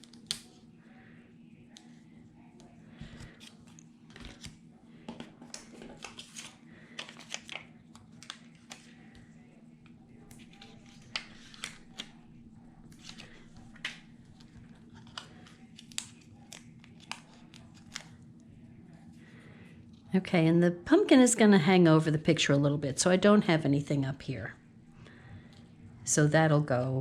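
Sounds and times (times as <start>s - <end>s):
faint steady hum: 0.0s - 27.0s
paper rustling and crinkling: 3.0s - 4.6s, 5.4s - 9.2s, 10.2s - 12.2s, 12.8s - 18.2s.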